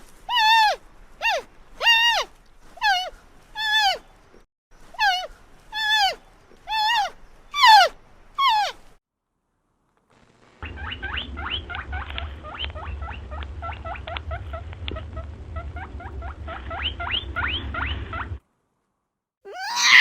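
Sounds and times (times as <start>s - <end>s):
rodent squeaking: 0.3s - 4.0s, 4.9s - 8.8s
steady low rumble: 10.4s - 18.4s.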